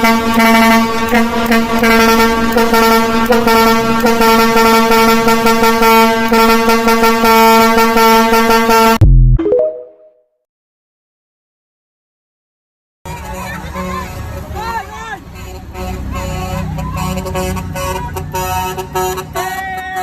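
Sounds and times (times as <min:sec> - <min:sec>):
truck air horn: 0:00.0 - 0:09.0, 0:13.1 - 0:20.0.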